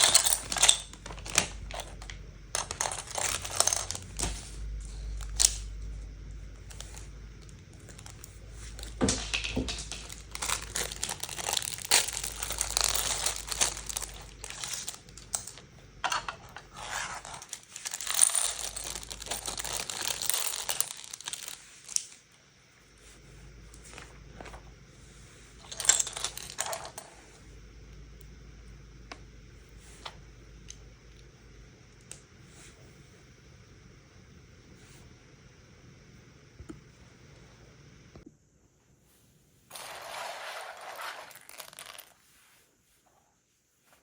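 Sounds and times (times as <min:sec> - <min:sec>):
plastic pieces clicking and clattering: 0:00.0 - 0:04.4, 0:06.7 - 0:22.2, 0:25.6 - 0:27.0, 0:39.7 - 0:42.2
plastic bags crinkling and tearing: 0:09.7 - 0:15.2, 0:17.4 - 0:22.1.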